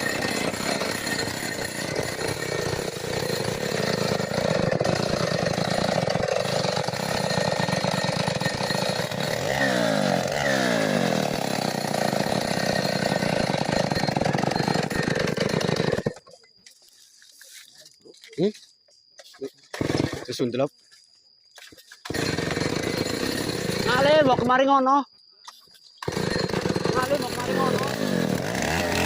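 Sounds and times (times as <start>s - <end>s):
chainsaw cutting wood: 0.0s - 16.4s, 19.6s - 20.4s, 21.6s - 24.6s, 26.0s - 29.0s.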